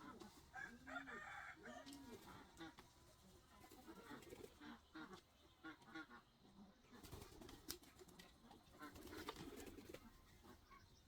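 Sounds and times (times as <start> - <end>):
poultry calling faintly: 0.0 - 7.1.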